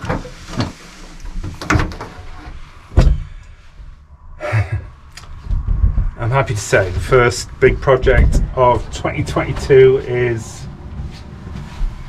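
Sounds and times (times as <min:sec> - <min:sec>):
knocks and bumps: 0:02.9 - 0:04.0, 0:04.6 - 0:12.0.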